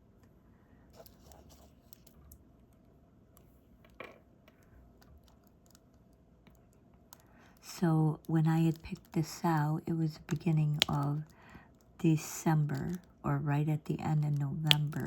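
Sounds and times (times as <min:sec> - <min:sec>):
drill pen clicks and taps: 0:10.3 - 0:11.1, 0:14.7 - 0:15.0.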